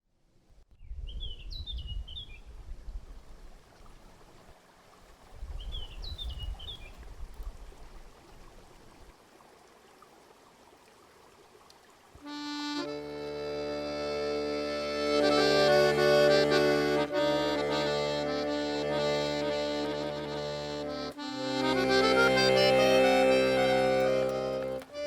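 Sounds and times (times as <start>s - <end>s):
songbird chirping: 5.5s - 7.1s.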